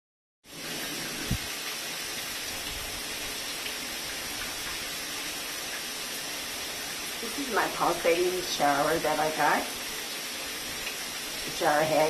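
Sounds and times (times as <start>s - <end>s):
water spraying from shower head: 0.5s - 12.0s.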